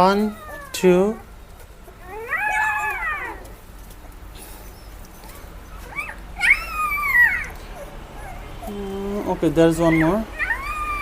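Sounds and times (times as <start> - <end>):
puppy crying: 0.0 - 11.0.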